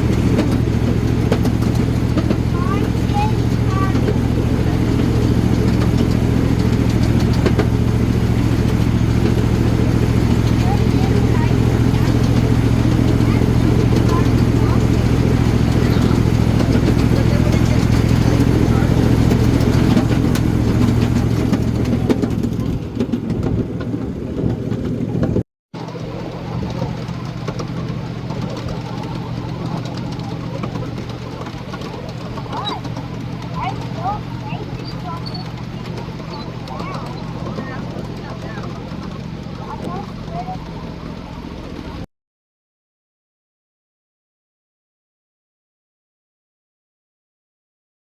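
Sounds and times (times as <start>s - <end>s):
miniature train engine hum: 0.0s - 42.1s.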